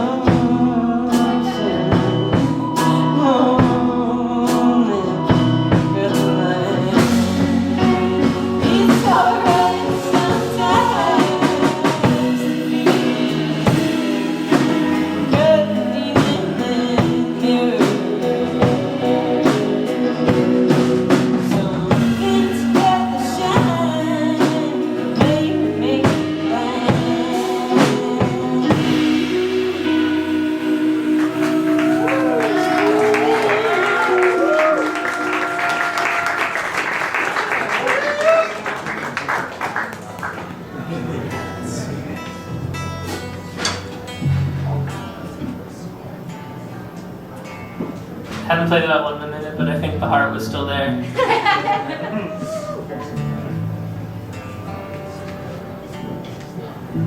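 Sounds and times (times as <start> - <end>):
person singing: 0.0 - 36.6
amplified instruments: 0.0 - 57.0
drum kit: 0.0 - 57.0.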